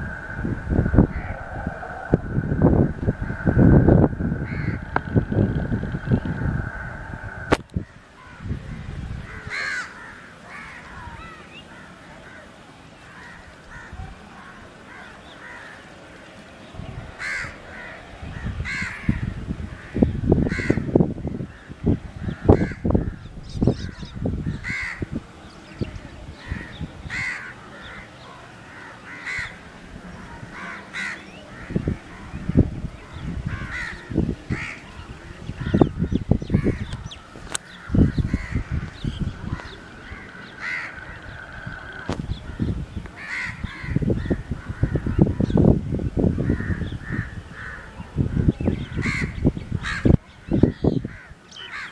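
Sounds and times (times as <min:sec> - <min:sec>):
low rumbling: 0:00.0 - 0:10.1, 0:29.5 - 0:50.1
crows cawing: 0:00.0 - 0:16.2, 0:17.0 - 0:25.2, 0:26.4 - 0:45.6, 0:46.3 - 0:51.9.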